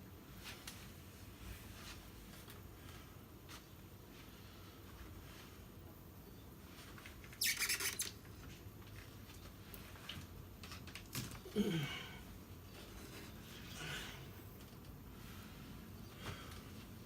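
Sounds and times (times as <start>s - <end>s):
brief squeak: 7.3s - 8.2s.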